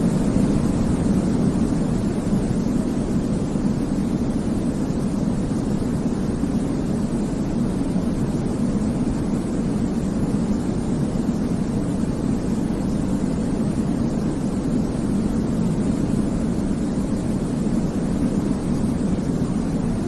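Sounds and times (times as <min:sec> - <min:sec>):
deep rumbling white noise: 0:00.0 - 0:20.0.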